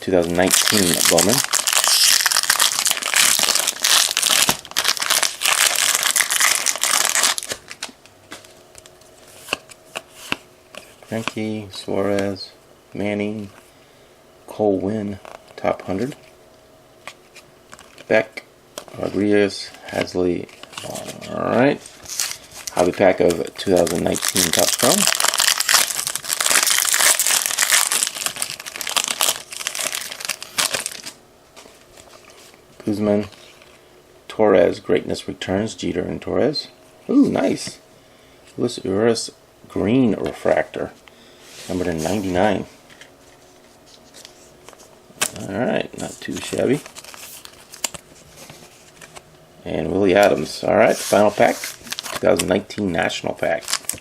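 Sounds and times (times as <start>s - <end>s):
wrapper tearing and crinkling: 0.2s - 7.9s, 21.9s - 31.2s, 46.2s - 49.2s, 50.9s - 52.8s, 53.4s - 54.0s.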